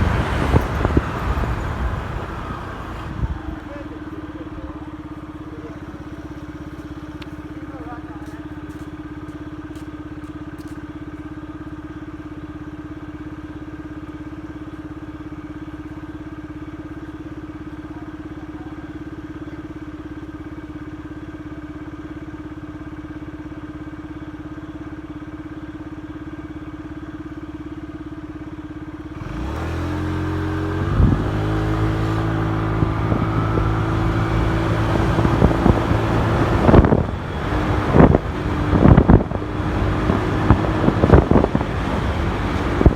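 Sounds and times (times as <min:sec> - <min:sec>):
wind on microphone: 0:00.0 - 0:03.6, 0:30.8 - 0:42.9
motorcycle engine: 0:00.0 - 0:42.9.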